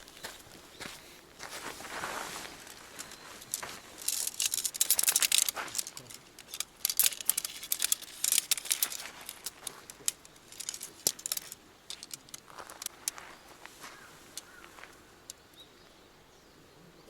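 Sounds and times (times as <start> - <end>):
crinkling: 1.4 - 15.4
light clinks and ticks: 2.4 - 15.6.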